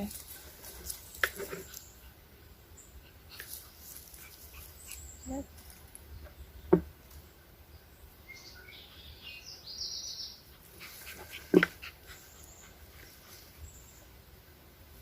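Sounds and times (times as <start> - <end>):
outdoor ambience: 0.0 - 15.0
faint bird chirps: 7.7 - 14.1.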